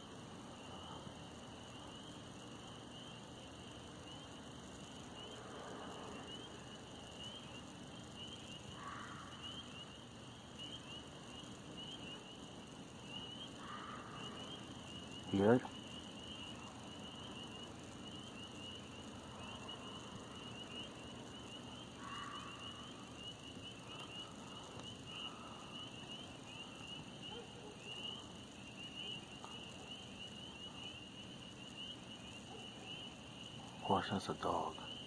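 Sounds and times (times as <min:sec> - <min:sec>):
night insects chorus: 0:00.0 - 0:35.0
distant dog barks: 0:27.2 - 0:28.3, 0:32.4 - 0:33.1.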